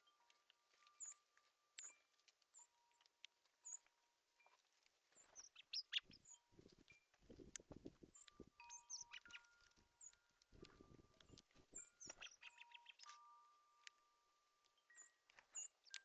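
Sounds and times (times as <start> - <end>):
wind chime ringing: 0.0 - 3.8, 8.1 - 16.0
songbirds chirping: 0.0 - 16.0.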